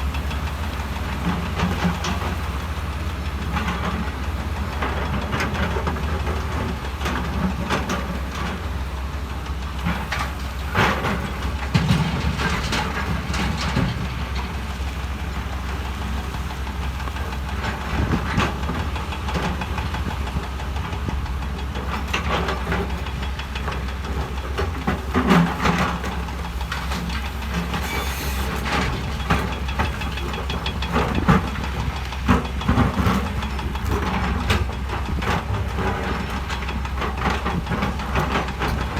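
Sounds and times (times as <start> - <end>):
heavy diesel machinery droning: 0.0 - 38.9.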